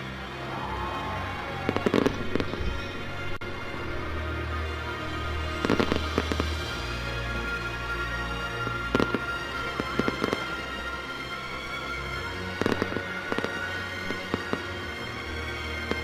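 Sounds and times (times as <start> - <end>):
music playing: 0.0 - 16.0
fireworks bangs and pops: 5.6 - 6.6, 8.9 - 10.6, 12.6 - 14.6.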